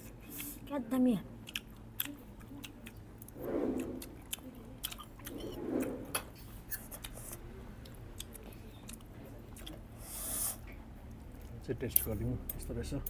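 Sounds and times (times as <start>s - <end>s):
chewing and mouth sounds: 1.4s - 9.8s.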